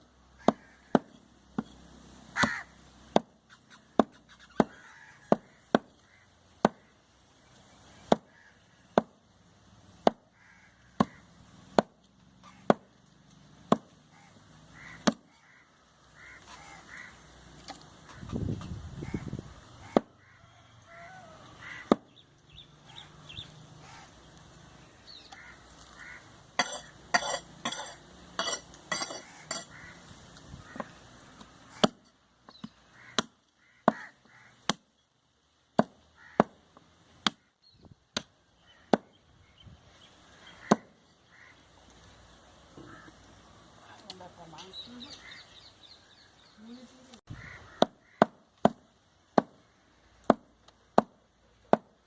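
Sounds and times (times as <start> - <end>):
waterfowl honking: 14.2 - 17.2, 25.4 - 26.8, 29.2 - 30.0, 47.4 - 48.2.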